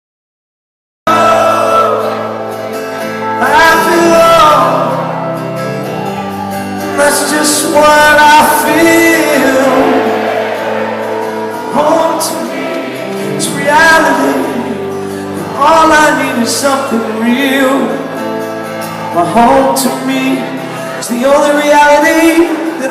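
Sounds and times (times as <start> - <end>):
live rock band playing: 1.1 - 22.9
person singing gliding phrases: 6.8 - 18.0.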